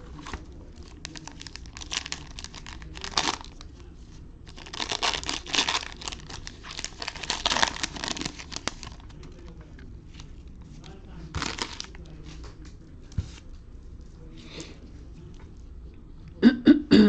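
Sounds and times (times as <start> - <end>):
card pack wrapper crinkling and tearing: 0.1 - 3.7, 4.5 - 9.4, 11.3 - 12.1.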